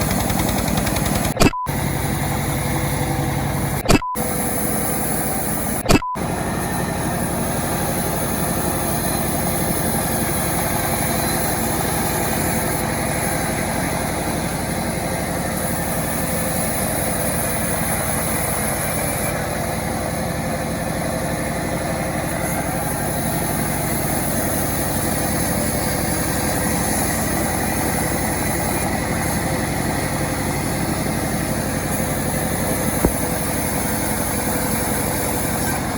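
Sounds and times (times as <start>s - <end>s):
chainsaw engine running: 0.0s - 35.9s.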